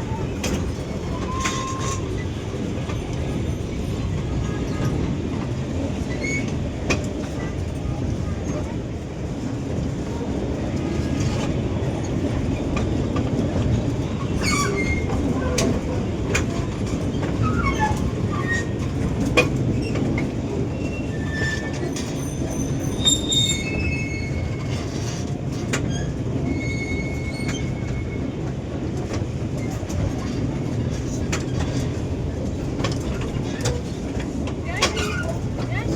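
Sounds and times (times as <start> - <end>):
high squeals of train wheels: 0.0 - 5.1, 6.0 - 6.7, 14.0 - 15.8, 16.4 - 19.1, 19.7 - 28.5
park train rumbling on track: 0.0 - 35.9
train clicks: 0.0 - 35.9.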